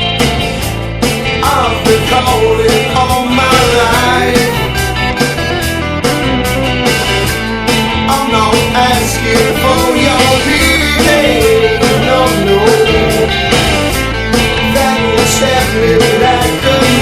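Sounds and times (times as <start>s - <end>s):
bass guitar: 0.0s - 17.0s
electric guitar lines: 0.0s - 17.0s
steady drum beat: 0.0s - 17.0s.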